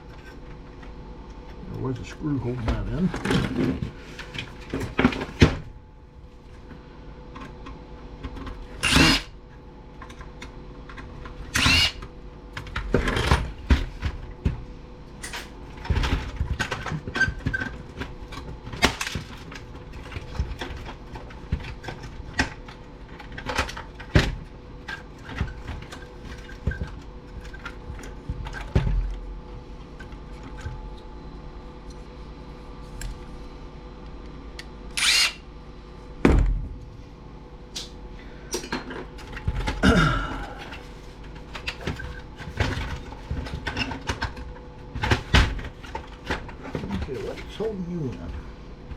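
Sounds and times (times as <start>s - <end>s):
cordless drill-driver whirring: 8.8s - 9.3s, 11.5s - 12.0s, 35.0s - 35.4s.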